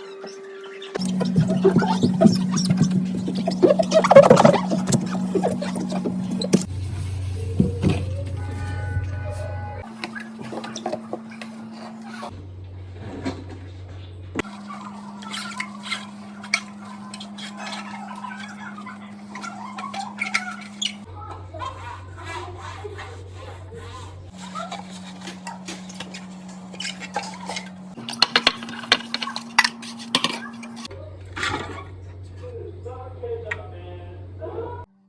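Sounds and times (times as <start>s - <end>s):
dishes clinking and clattering: 24.6s - 31.9s.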